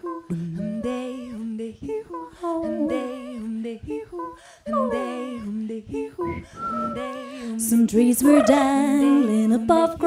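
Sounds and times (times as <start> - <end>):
women humming in harmony: 0.0 - 1.6, 2.4 - 3.6, 6.2 - 10.0.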